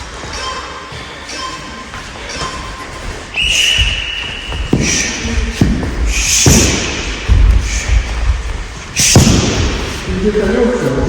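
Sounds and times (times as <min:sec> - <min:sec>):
punches and kicks thudding on target: 0:04.7 - 0:08.1, 0:09.0 - 0:10.0.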